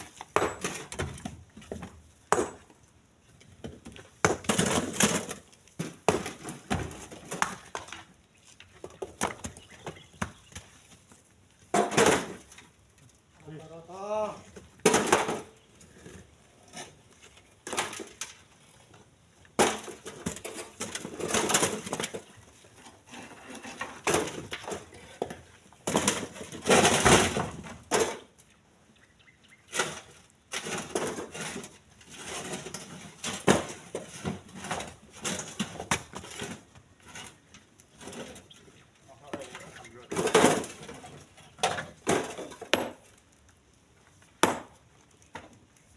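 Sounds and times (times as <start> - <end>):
stones scraping clatter: 29.7 - 43.2.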